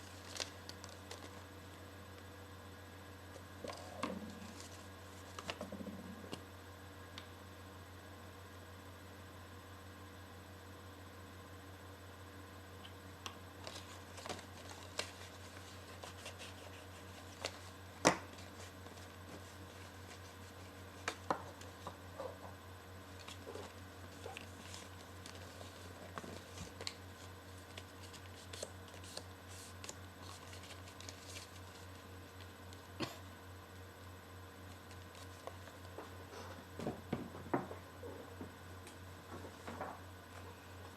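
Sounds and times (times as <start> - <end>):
paper rustling and folding: 0.0 - 1.5, 3.3 - 5.7, 13.6 - 22.4, 23.1 - 32.5, 34.7 - 36.2
steady low hum: 0.0 - 40.9.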